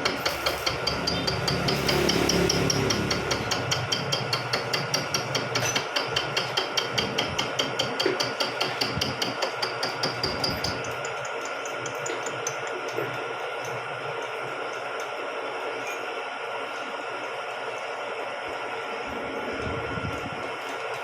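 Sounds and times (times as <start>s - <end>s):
milling machine ticking: 0.0s - 15.4s
milling machine hum: 0.0s - 21.0s.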